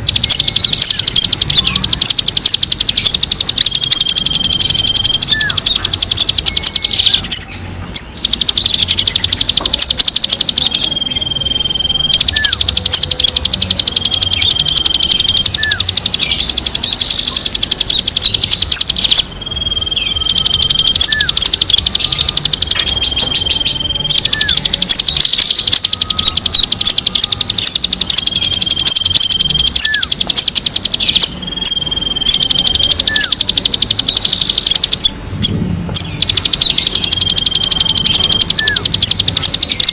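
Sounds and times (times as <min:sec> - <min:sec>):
bird whistles and chirps: 0:00.0 - 0:39.9
songbird chattering trill: 0:00.0 - 0:39.9.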